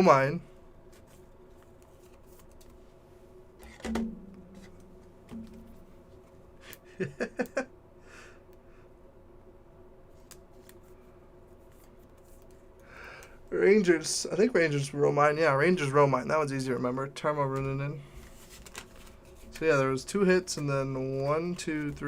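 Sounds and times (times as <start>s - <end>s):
faint steady hum: 0.0s - 22.0s
trading cards handled: 0.9s - 2.8s, 18.2s - 19.7s.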